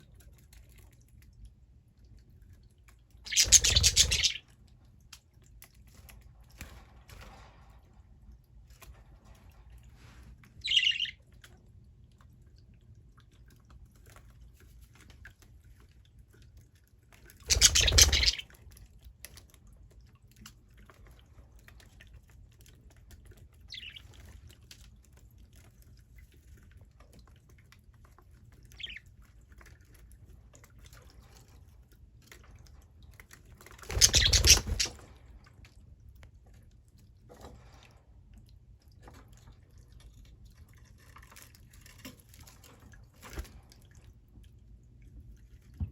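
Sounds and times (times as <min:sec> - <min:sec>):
budgerigars chirping: 0:03.3 - 0:04.4, 0:10.6 - 0:11.1, 0:17.5 - 0:18.4, 0:23.7 - 0:24.0, 0:28.8 - 0:29.0, 0:34.0 - 0:35.0.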